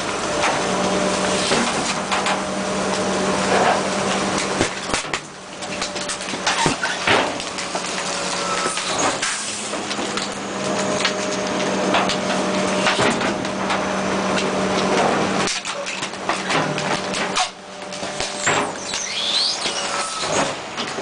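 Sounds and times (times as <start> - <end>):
garbage truck running: 0.0 - 21.0
sharp knocks and clanks: 11.9 - 13.8.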